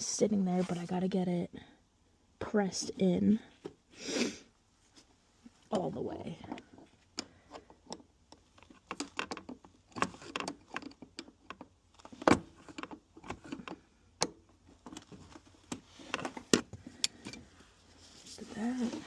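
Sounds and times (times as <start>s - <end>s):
soft rustling: 0.4s - 1.1s, 4.7s - 7.5s, 14.6s - 19.0s
plastic parts clicking and knocking: 5.7s - 17.4s.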